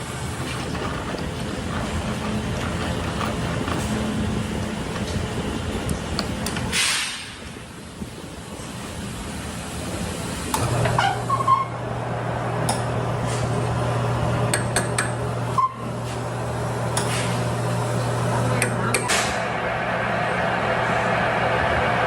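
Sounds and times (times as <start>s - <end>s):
machine humming: 10.5s - 22.0s.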